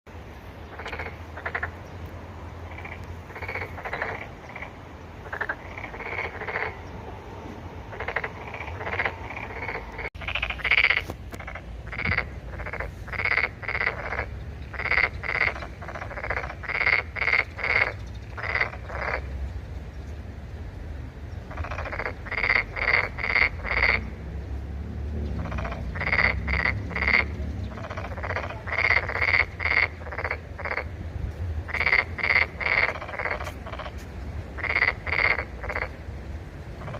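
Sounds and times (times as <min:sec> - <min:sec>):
toads croaking: 0:00.7 - 0:01.9, 0:02.7 - 0:06.9, 0:07.9 - 0:19.3, 0:21.5 - 0:24.2, 0:25.4 - 0:31.0, 0:31.7 - 0:36.0.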